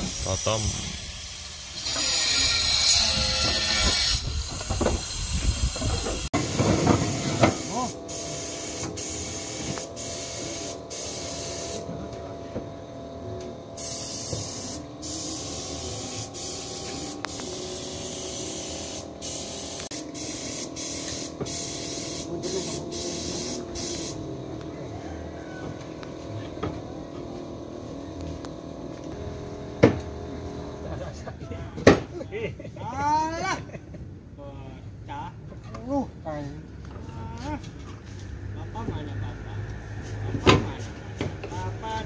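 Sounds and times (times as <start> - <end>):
steady machine hum: 6.0 - 32.6
paint spray gun hissing: 6.4 - 11.9, 13.8 - 24.3.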